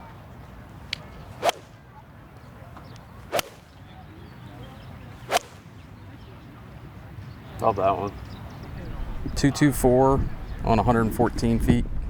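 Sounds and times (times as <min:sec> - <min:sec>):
golf club striking ball: 0:03.3 - 0:03.7.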